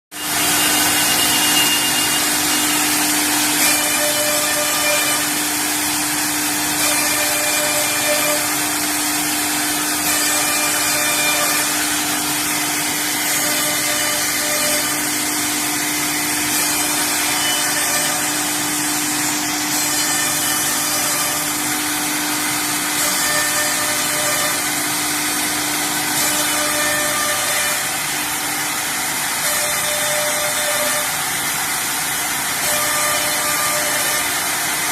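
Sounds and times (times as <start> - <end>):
router spindles whining: 0.2 - 34.9.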